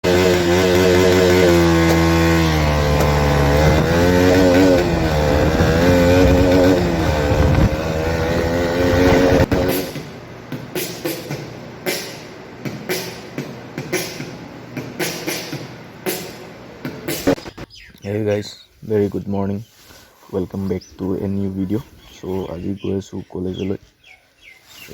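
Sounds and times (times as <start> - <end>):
motorcycle engine revving: 0.0 - 17.6.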